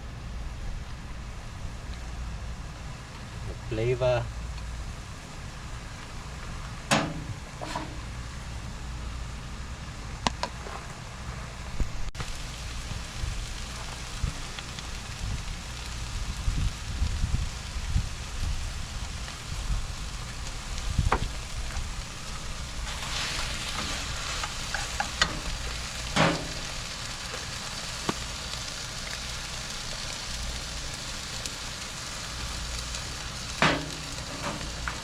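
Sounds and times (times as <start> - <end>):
food sizzling in a pan: 12.2 - 35.0.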